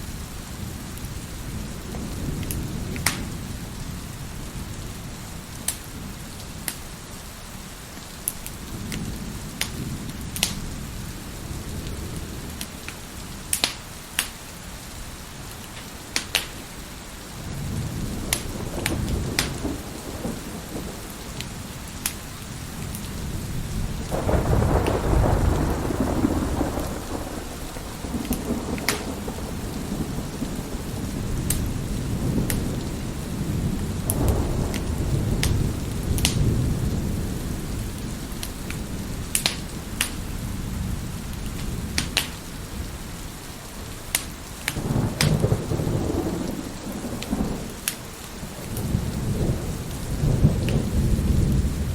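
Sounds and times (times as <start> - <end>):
heavy rain: 0.0 - 51.9
wood fire crackling and popping: 2.4 - 3.3, 5.6 - 5.9, 8.2 - 10.6, 12.6 - 14.5, 15.5 - 16.7, 18.2 - 19.7, 20.4 - 23.1, 28.1 - 29.3, 31.4 - 31.7, 32.4 - 33.0, 34.0 - 36.5, 38.4 - 40.2, 41.3 - 42.5, 44.0 - 45.7
rolling thunder: 17.4 - 43.3, 44.7 - 51.9.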